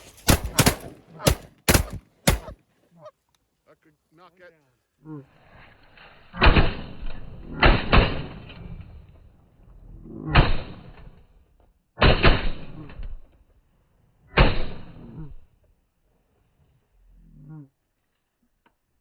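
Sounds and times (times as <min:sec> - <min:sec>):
shotgun blasts: 0:00.0 - 0:02.6, 0:12.0 - 0:12.9, 0:14.4 - 0:15.0.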